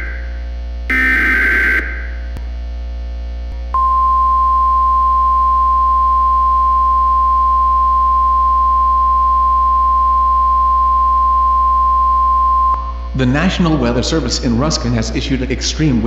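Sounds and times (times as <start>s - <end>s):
steady alarm tone: 0.0s - 2.4s
low hum: 0.0s - 16.0s.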